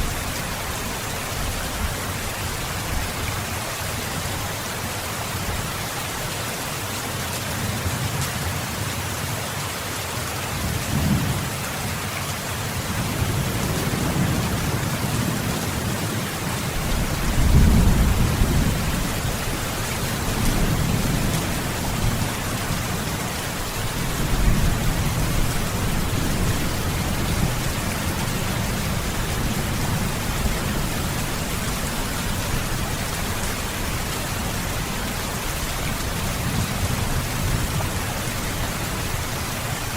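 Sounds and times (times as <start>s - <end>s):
heavy rain hissing: 9.8s - 39.9s
low rolling thunder: 13.0s - 16.2s, 16.8s - 23.0s, 23.9s - 32.9s.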